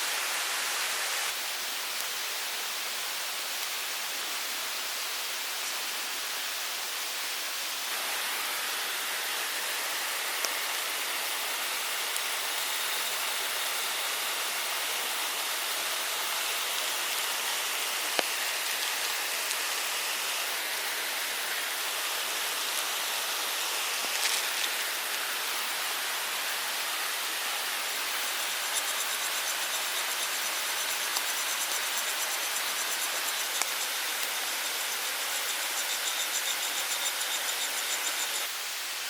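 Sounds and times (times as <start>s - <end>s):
forest stream rushing: 0.0s - 39.0s.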